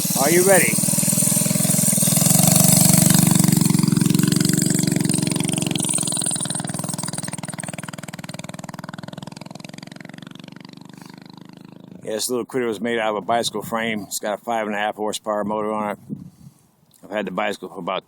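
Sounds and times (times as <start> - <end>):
small engine under throttle: 0.0 - 12.1.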